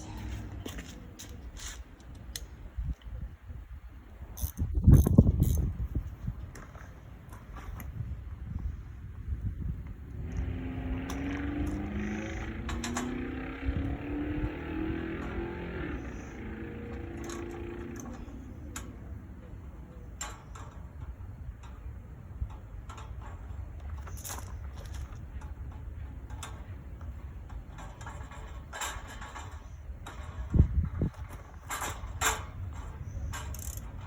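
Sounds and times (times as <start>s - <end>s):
vehicle engine running: 10.1s - 19.8s
metal clicks and knocks: 10.3s - 14.3s, 14.9s - 34.0s.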